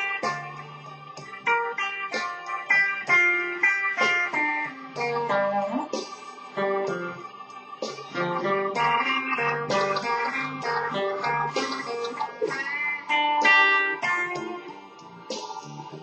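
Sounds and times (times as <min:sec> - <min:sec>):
electric guitar melody: 0:00.0 - 0:16.0.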